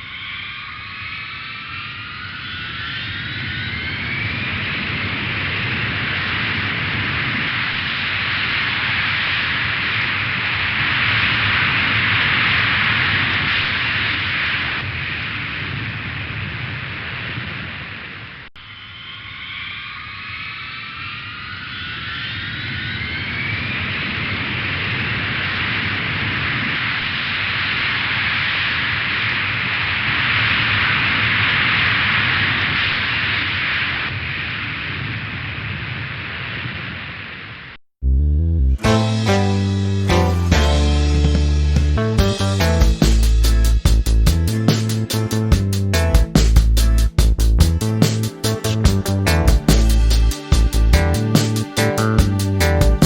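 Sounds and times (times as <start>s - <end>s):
jet engines whining: 0.0s - 16.1s, 47.7s - 53.0s
rushing jet noise: 0.0s - 37.8s, 42.6s - 53.0s.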